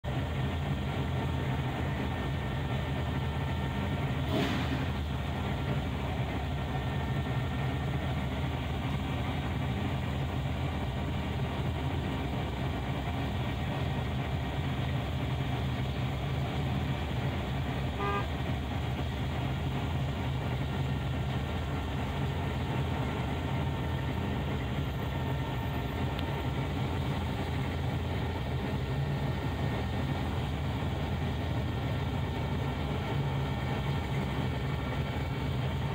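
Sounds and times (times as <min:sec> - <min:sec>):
car engine idling: 0:00.0 - 0:35.9
car horn toot: 0:17.8 - 0:18.5.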